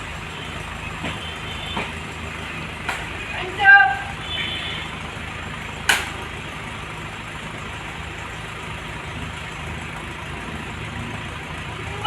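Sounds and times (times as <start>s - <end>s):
engine idling: 0.0s - 12.0s
sharp crack: 2.8s - 3.2s, 5.8s - 6.4s.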